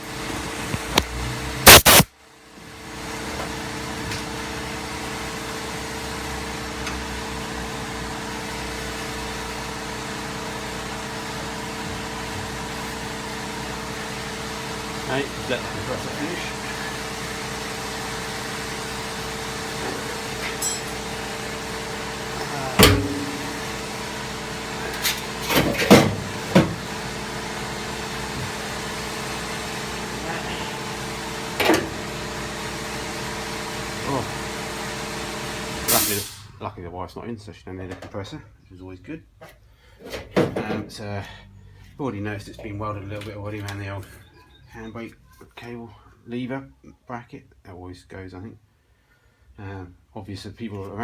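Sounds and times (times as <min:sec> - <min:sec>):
air compressor running: 0:00.0 - 0:36.6.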